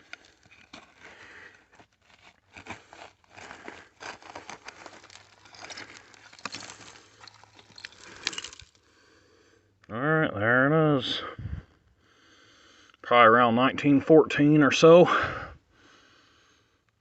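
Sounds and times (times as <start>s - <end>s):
scraping and crumbling soil: 0.0s - 9.1s.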